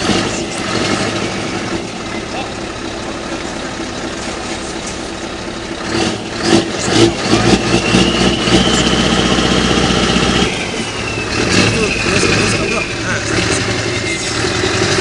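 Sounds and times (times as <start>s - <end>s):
diesel engine rumbling: 0.0s - 15.0s
high whine: 6.6s - 15.0s.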